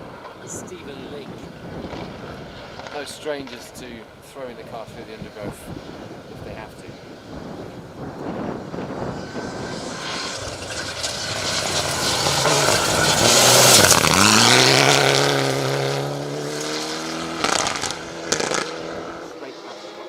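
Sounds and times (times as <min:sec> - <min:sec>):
rally car engine passing: 0:05.8 - 0:20.0.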